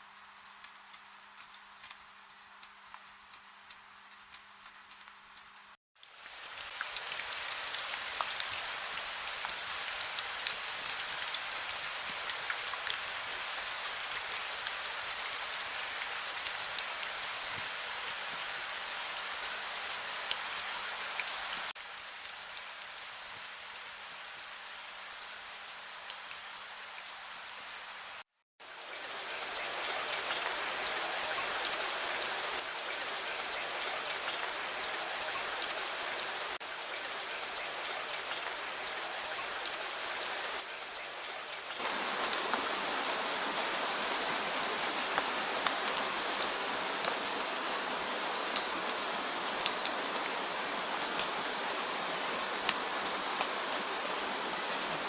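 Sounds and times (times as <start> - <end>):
rain falling on a surface: 0.0 - 55.0
raindrops ticking: 0.4 - 11.3, 41.8 - 55.0.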